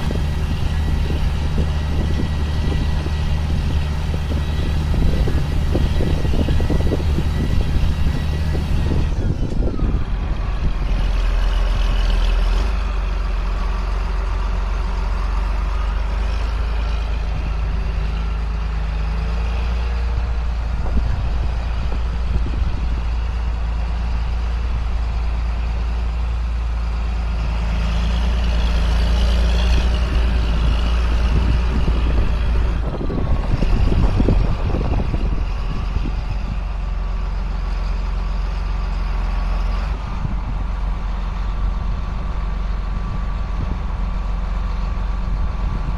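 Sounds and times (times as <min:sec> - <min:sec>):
sprayer engine droning: 0:00.0 - 0:11.5.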